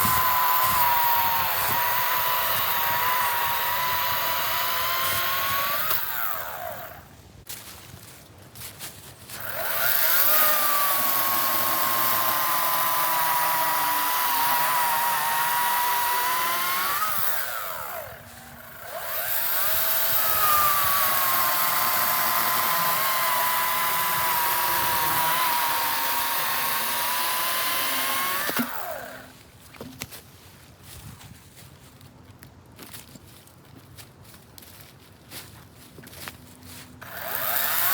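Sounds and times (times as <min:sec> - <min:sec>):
electric chainsaw cutting: 0:00.0 - 0:07.1, 0:09.3 - 0:29.4, 0:37.0 - 0:37.9.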